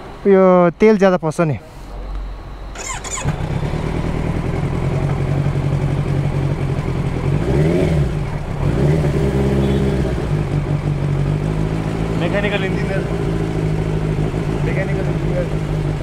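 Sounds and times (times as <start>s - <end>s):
motorcycle engine idling unsteadily: 2.8s - 8.6s.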